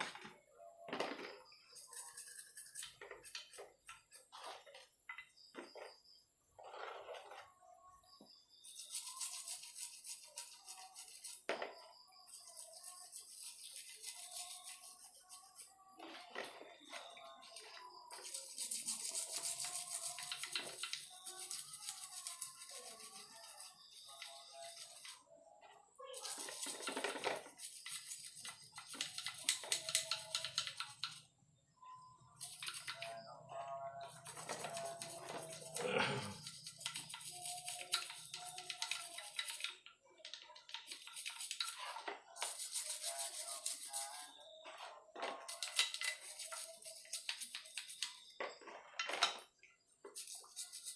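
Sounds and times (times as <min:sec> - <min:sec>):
brush scrubbing metal parts: 0:01.7 - 0:04.6, 0:08.6 - 0:11.5, 0:12.3 - 0:25.2, 0:26.0 - 0:31.2, 0:32.4 - 0:33.2, 0:34.0 - 0:44.4, 0:45.2 - 0:48.3, 0:50.0 - 0:50.9
stiff brush scrubbing: 0:18.1 - 0:25.2, 0:34.1 - 0:39.7.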